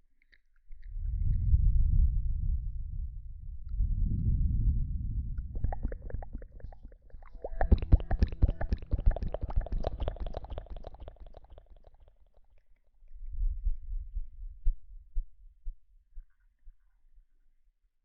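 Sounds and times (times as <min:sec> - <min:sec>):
rustling crackles and taps: 0:05.6 - 0:12.2.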